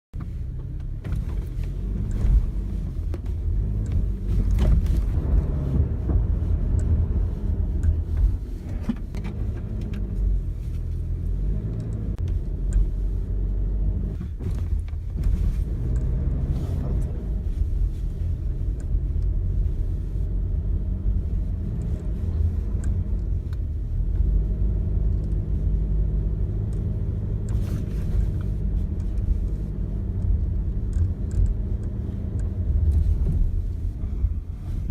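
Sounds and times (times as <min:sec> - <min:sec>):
engine and road rumble: 0:00.0 - 0:34.9.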